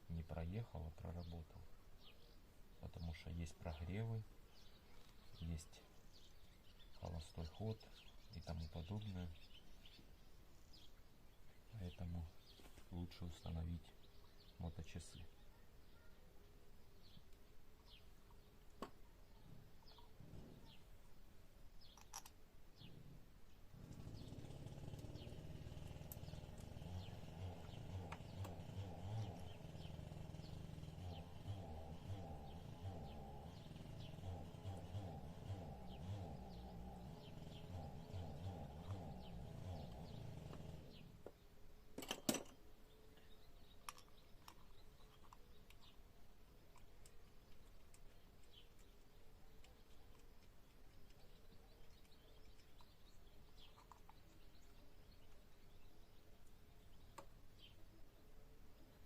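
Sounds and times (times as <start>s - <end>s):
bird chirping: 0.0s - 59.0s
sharp clicks: 21.9s - 22.4s.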